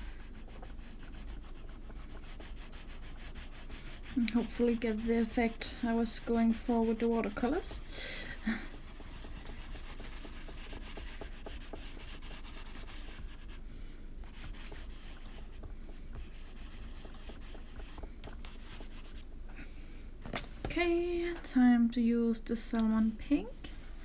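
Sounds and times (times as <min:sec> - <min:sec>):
scratchy scribbling on paper: 0:00.0 - 0:13.6, 0:14.2 - 0:19.3.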